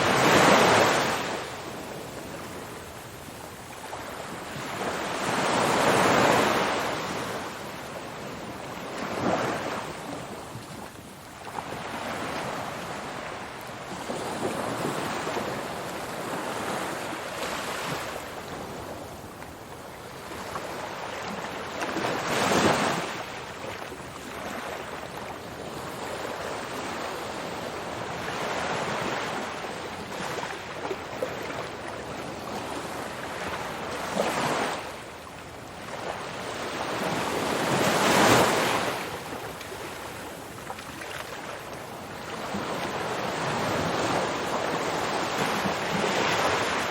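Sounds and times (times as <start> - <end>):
ocean waves breaking: 0.0 - 2.8.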